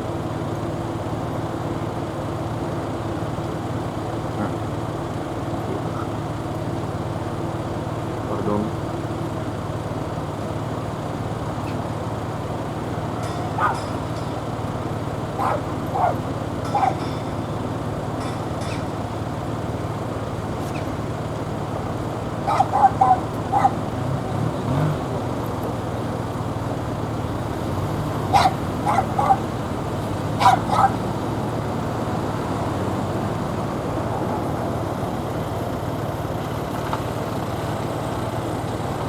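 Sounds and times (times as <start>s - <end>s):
road traffic hum: 0.0s - 39.0s
dog barking: 11.6s - 11.8s, 13.2s - 14.2s, 15.3s - 17.2s, 22.4s - 23.9s, 28.3s - 29.6s, 30.2s - 31.1s.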